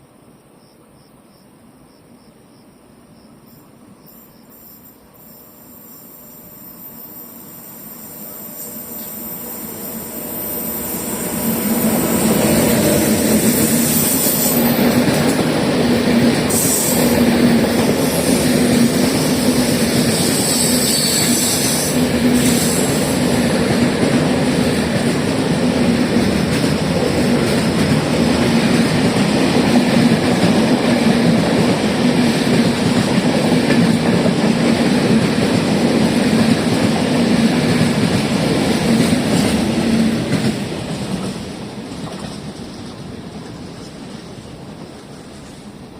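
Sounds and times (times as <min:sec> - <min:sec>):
train rail hum: 0:00.0 - 0:45.9
train wheels clickety-clack: 0:10.7 - 0:45.9.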